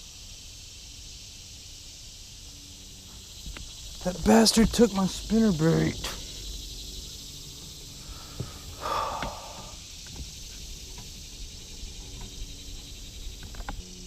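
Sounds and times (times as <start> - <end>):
crickets and insects chirring: 0.0 - 14.0
breathy burst: 8.0 - 9.8.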